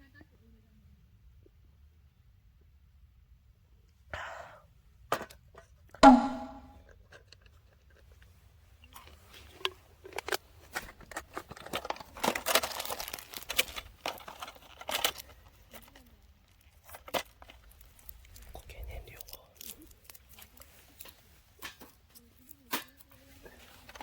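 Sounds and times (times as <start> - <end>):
crinkling handling noise: 6.9 - 24.0.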